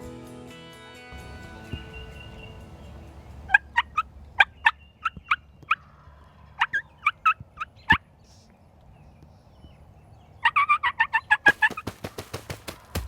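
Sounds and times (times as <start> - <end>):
turkey calling: 1.7 - 8.0, 10.4 - 13.0.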